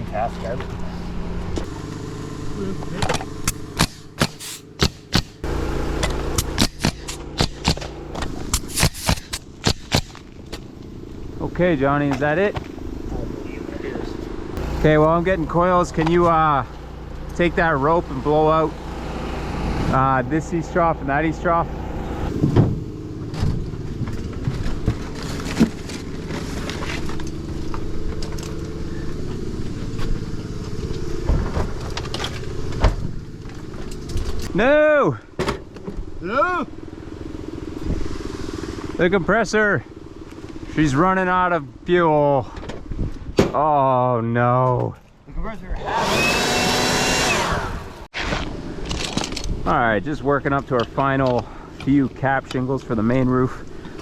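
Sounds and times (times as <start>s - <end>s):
air compressor engine running: 0.5s - 34.6s, 36.6s - 41.5s, 45.8s - 48.1s
pneumatic nailer firing: 3.0s - 10.4s, 45.9s - 49.3s.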